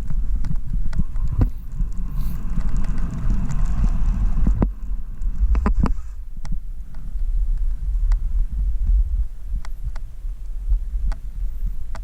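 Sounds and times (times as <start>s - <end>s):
wind buffeting microphone: 0.0s - 12.0s
skis hissing through snow: 1.2s - 6.2s.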